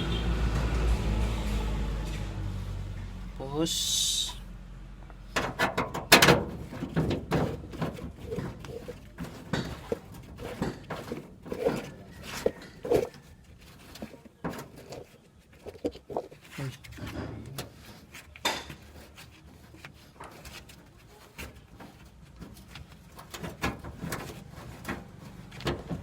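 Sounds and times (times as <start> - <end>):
metallic knocks and clanks: 5.1 - 13.2.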